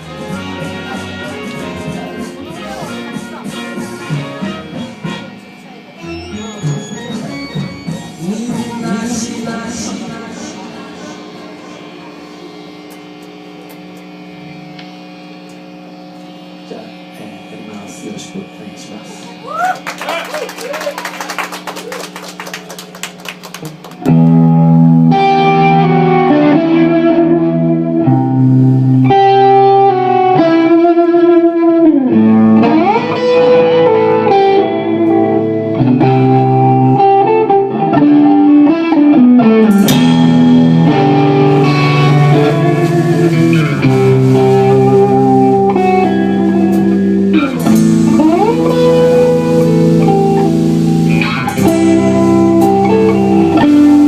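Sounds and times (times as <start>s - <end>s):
live band led by guitar: 0.0s - 54.0s.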